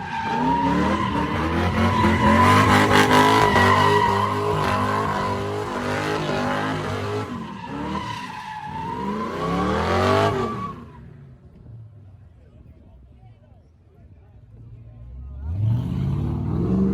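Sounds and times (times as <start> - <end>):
tyres squealing: 0.0 - 9.2
car engine revving: 0.2 - 8.1.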